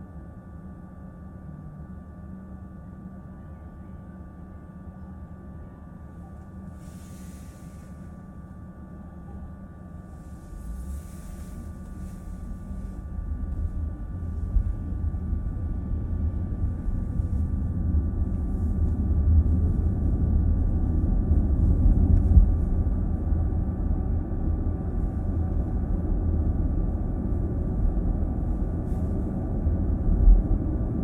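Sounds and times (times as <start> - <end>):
faint high hum: 0.0 - 31.0
road and tyre rumble: 10.1 - 31.0.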